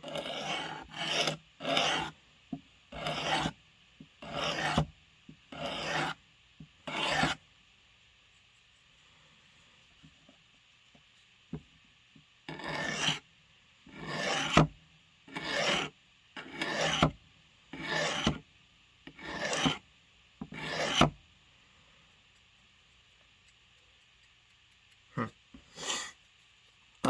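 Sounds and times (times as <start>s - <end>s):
blade scraping on sharpening stone: 0.0s - 2.1s, 3.0s - 3.5s, 4.2s - 4.8s, 5.6s - 6.2s, 12.5s - 13.2s, 14.0s - 14.6s, 15.3s - 15.9s, 16.5s - 17.0s, 17.8s - 18.4s, 19.2s - 19.8s, 20.6s - 21.0s.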